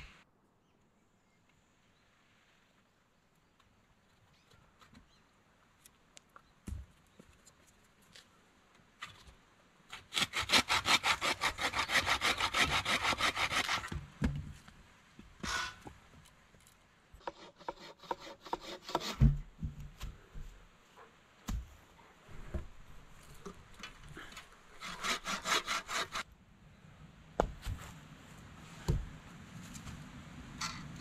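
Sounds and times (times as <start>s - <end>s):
saw cutting through log: 9.9s - 14.0s, 17.2s - 19.2s, 24.8s - 26.2s.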